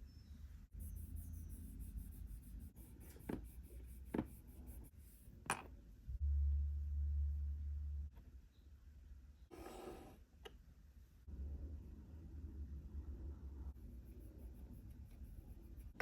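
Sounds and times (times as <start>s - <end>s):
low hum: 6.0s - 8.4s.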